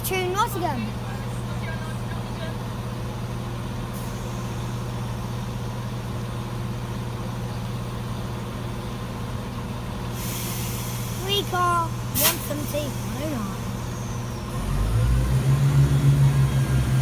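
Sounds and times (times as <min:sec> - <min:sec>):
train diesel engines humming: 0:00.0 - 0:17.0
rushing hiss: 0:10.2 - 0:14.3.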